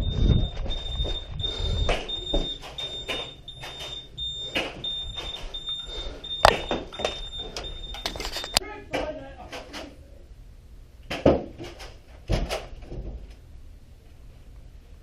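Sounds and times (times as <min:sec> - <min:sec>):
thin high beep: 0:05.3 - 0:08.6.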